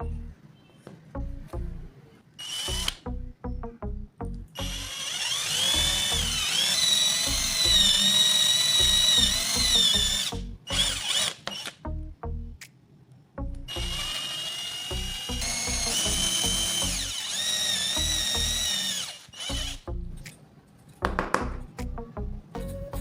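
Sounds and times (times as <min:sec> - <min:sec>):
electric drill whining: 0:02.4 - 0:03.0, 0:04.6 - 0:11.8, 0:13.7 - 0:19.8.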